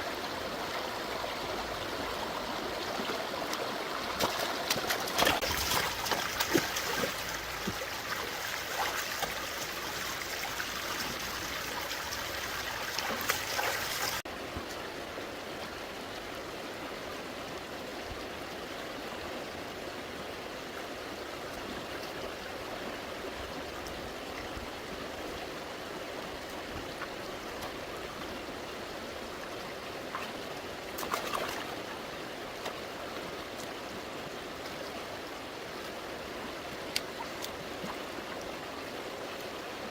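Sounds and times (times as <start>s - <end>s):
stream water running: 0.0s - 39.9s
knocks and splashing: 4.1s - 9.4s, 12.9s - 14.2s
water splash: 4.1s - 14.2s, 31.0s - 31.7s.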